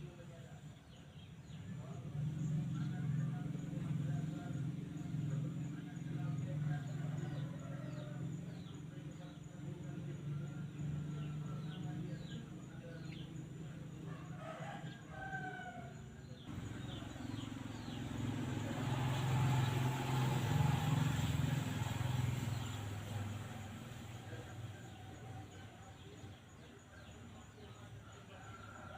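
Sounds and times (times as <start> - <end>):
small birds chirping: 0.0 - 28.9
vehicle passing: 1.4 - 28.9
rooster crowing: 14.1 - 21.0.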